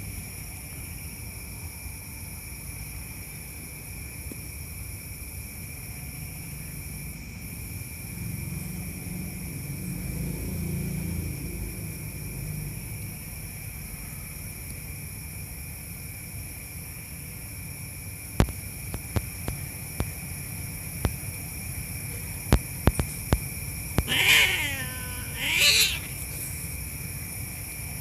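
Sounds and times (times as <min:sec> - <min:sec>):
cat yowling: 0:24.0 - 0:26.6.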